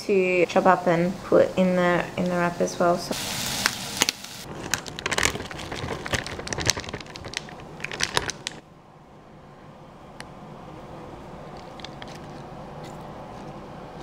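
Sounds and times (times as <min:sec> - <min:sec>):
meat sizzling in a pan: 0:03.1 - 0:04.5
sharp crackles and clicks: 0:03.2 - 0:08.6.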